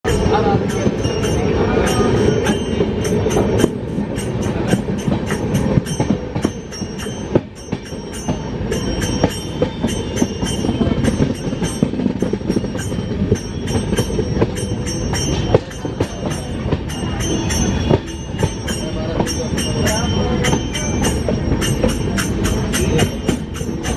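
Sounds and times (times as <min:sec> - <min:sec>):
train wheels rumbling: 0:00.0 - 0:23.9.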